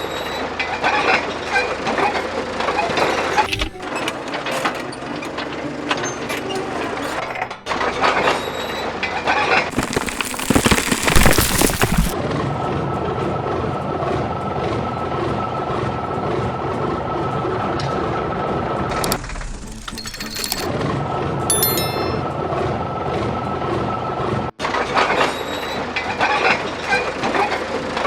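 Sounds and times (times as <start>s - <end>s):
mechanical clatter: 18.9s - 20.7s.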